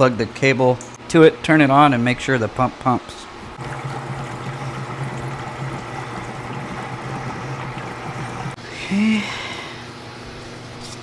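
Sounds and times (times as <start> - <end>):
fuel pump humming: 3.4 - 8.6.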